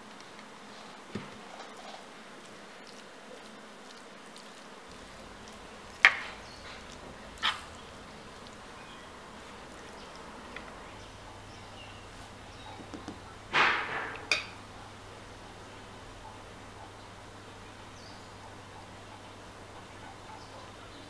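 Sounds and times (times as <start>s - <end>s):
faint background hum: 0.0s - 21.0s
sharp knocks: 12.8s - 14.5s.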